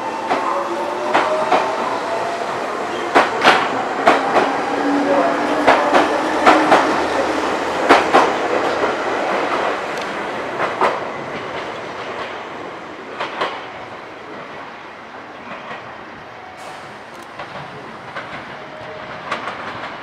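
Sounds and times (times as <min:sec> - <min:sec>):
electric train running noise: 0:00.0 - 0:12.4
train wheels clicking over rail joints: 0:00.2 - 0:04.7, 0:05.5 - 0:12.4, 0:16.6 - 0:20.0.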